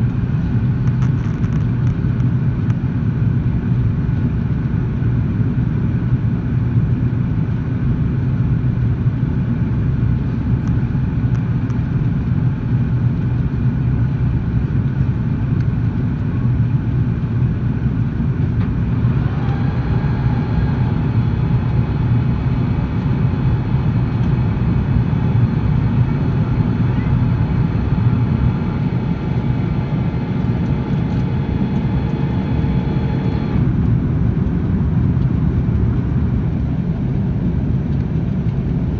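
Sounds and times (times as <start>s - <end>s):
jet airliner rumble: 0.0s - 38.9s
steady whining tones: 17.8s - 34.4s.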